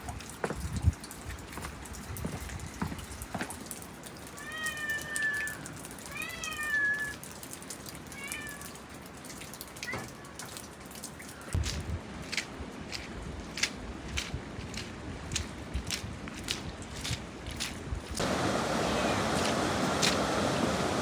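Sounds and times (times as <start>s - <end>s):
cat meowing: 4.4s - 7.2s, 8.1s - 8.7s.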